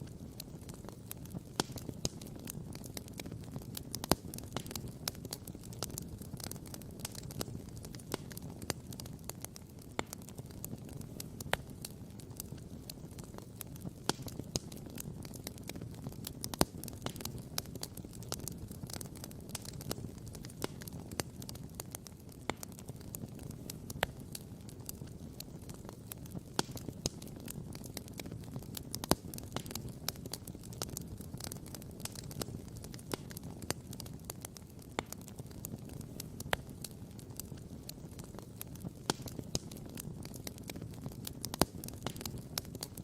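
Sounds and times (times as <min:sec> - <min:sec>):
campfire crackling and popping: 0:00.0 - 0:43.0.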